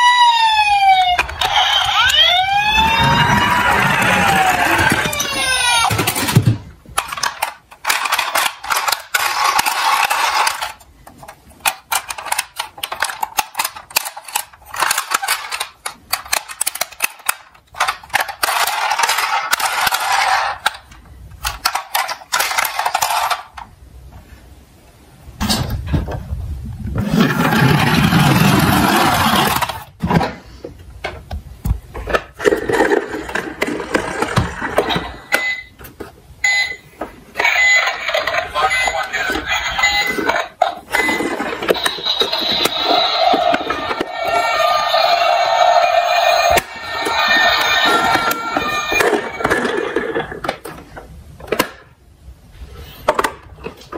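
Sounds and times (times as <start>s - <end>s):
toy cars rolling and clattering: 3.1s - 23.7s, 27.0s - 29.9s, 32.0s - 35.7s, 37.4s - 51.9s.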